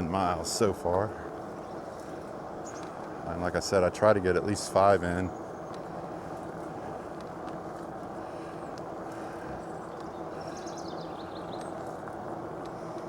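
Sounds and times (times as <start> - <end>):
bike tyre and drivetrain noise: 0.0 - 13.0.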